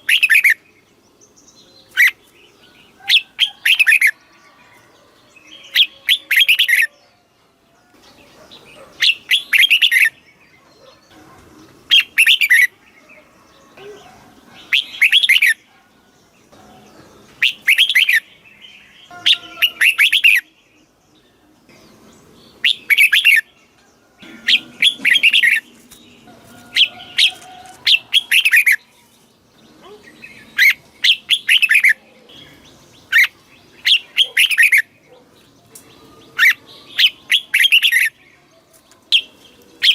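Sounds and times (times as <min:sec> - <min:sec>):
bird singing warbled phrases: 0:00.0 - 0:39.9.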